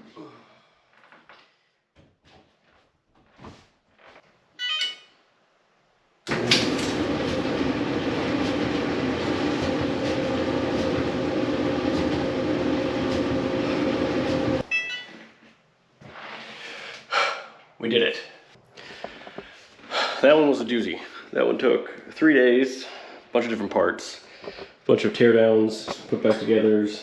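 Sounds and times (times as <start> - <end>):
dryer control panel beep: 4.6 - 5.1, 14.7 - 15.2
clothes dryer drum running: 6.3 - 14.7.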